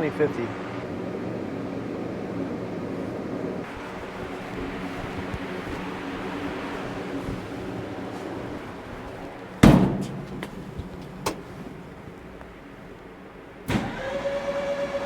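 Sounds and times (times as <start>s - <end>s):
starter motor clunk and whine: 8.2s - 15.0s
loud bang: 9.6s - 12.6s.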